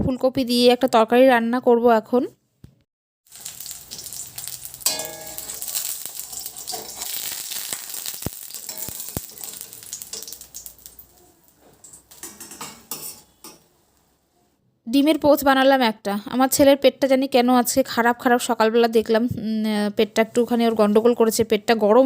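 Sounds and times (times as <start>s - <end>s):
food sizzling in hot oil: 3.2s - 13.0s.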